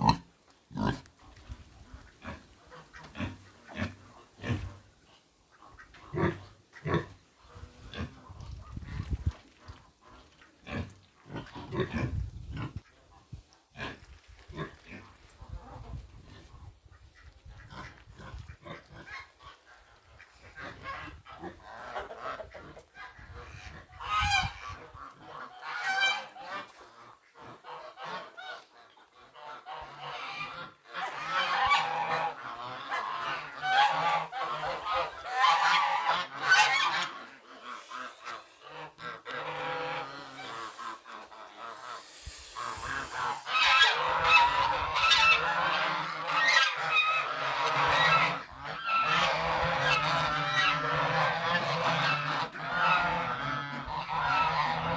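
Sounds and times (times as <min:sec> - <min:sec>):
pigs grunting: 0:00.0 - 0:01.1, 0:02.2 - 0:04.9, 0:06.0 - 0:07.2, 0:10.6 - 0:12.8, 0:33.5 - 0:46.1.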